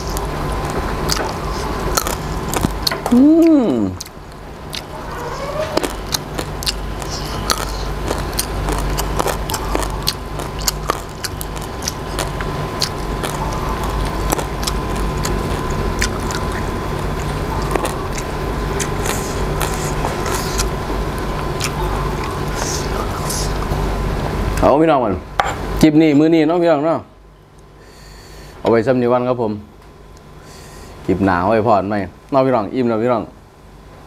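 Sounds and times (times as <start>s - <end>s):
chewing and crunching vegetables: 0.0s - 23.7s
steady low hum: 0.0s - 34.0s.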